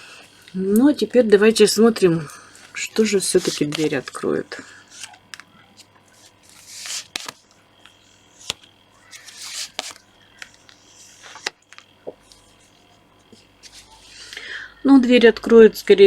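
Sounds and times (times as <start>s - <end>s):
cards rustling and sliding: 2.5s - 14.2s
cards snapping down: 3.0s - 4.2s, 6.5s - 7.4s, 8.4s - 11.9s.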